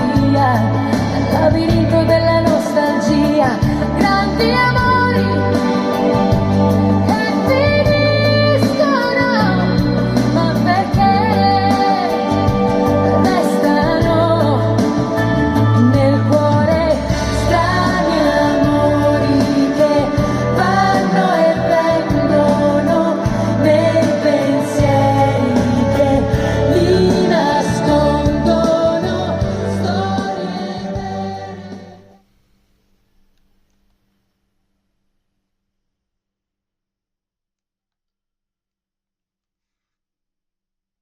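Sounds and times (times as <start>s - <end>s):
woman singing: 0.0s - 6.4s, 7.0s - 32.1s
heavy bass notes: 0.0s - 32.1s
pop song over speakers: 0.0s - 32.2s.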